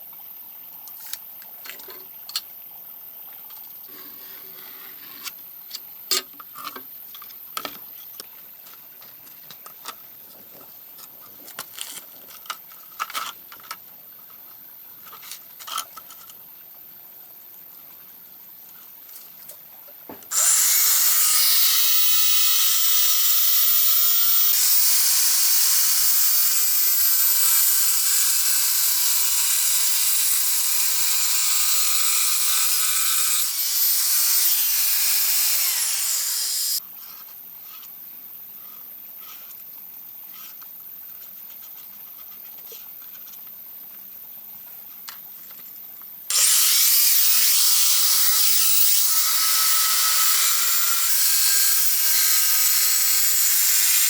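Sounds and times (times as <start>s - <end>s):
high-speed power tool whirring: 20.3s - 36.8s, 46.3s - 54.0s.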